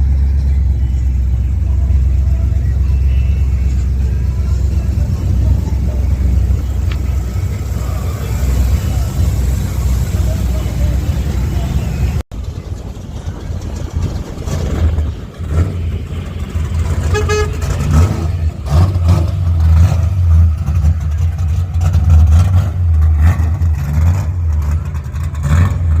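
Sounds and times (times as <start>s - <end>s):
car engine rumbling: 0.0s - 26.0s
car horn toot: 16.5s - 18.5s.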